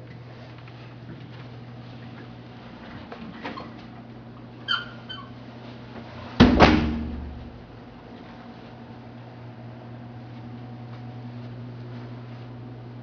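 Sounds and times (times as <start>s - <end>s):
low room hum: 0.0s - 13.0s
short high squeak: 4.7s - 5.3s
door shutting with heavy thud: 6.4s - 7.6s.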